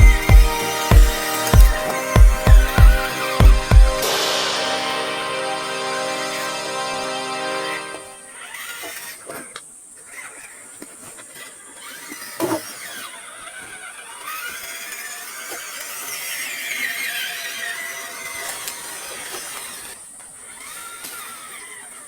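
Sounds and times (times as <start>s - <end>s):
rc car motor whining: 0.0s - 4.4s, 7.7s - 22.0s
sharp knock: 0.0s - 6.2s.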